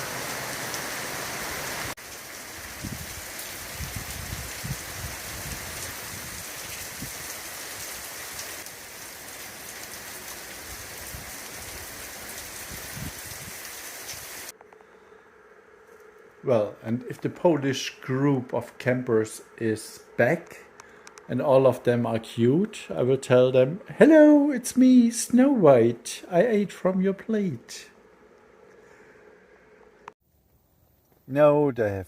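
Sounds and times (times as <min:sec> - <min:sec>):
rain falling: 0:00.0 - 0:14.5.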